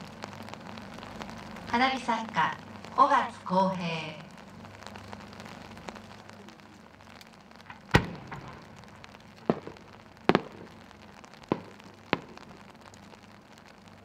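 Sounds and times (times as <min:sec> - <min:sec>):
faint crackling: 0:00.0 - 0:14.0
firework shell bangs: 0:07.7 - 0:10.9, 0:11.5 - 0:12.7.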